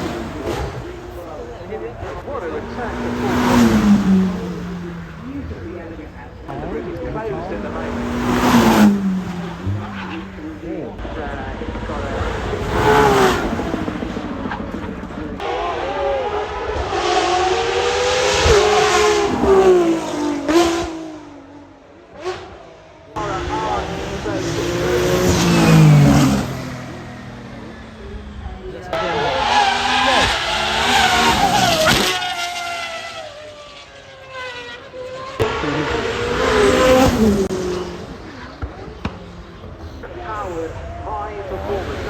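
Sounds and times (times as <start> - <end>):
cars passing at speed: 0.0 - 42.0
car engine accelerating past: 23.2 - 39.2.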